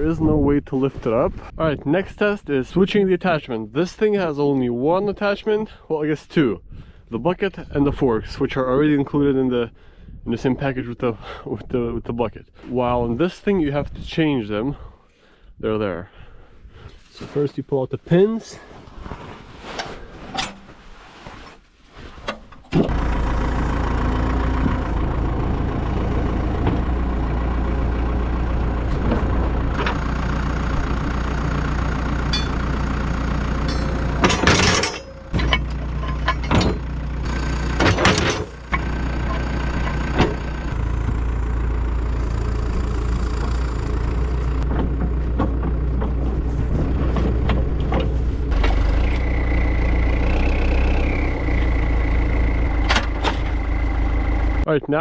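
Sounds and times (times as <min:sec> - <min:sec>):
loader diesel engine running: 0:22.8 - 0:54.7
sharp metal clanks: 0:32.2 - 0:32.7, 0:33.5 - 0:36.9, 0:37.8 - 0:40.5.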